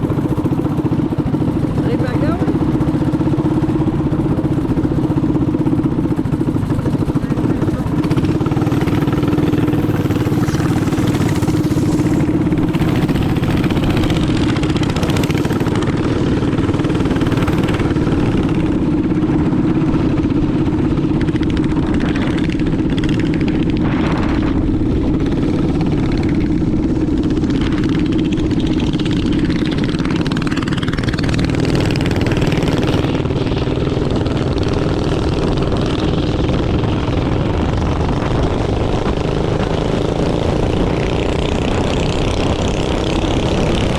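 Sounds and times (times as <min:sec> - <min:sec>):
minibike engine running: 0:00.0 - 0:43.9.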